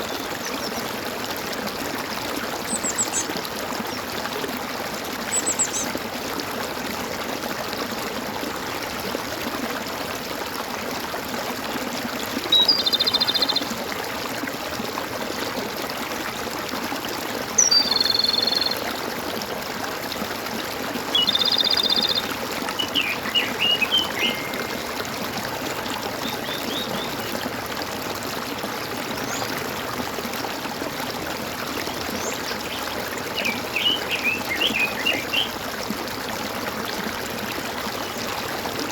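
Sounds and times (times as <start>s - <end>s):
water trickling and gurgling: 0.0s - 38.9s
birds calling: 21.1s - 25.0s, 32.0s - 35.5s
bird chirps: 21.2s - 24.7s, 33.4s - 35.5s.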